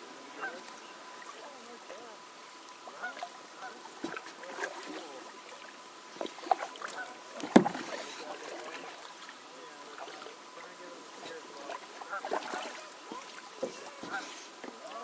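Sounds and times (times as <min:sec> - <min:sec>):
water splashing: 0:00.0 - 0:15.0
paddle knocking against kayak: 0:06.2 - 0:08.9, 0:11.7 - 0:15.0.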